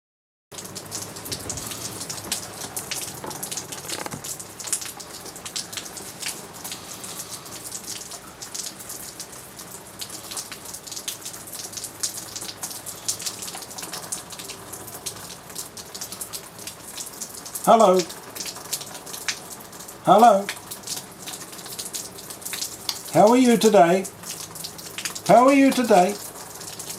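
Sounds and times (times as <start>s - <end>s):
raindrops ticking: 0.5s - 26.9s
rain hiss: 0.6s - 26.9s.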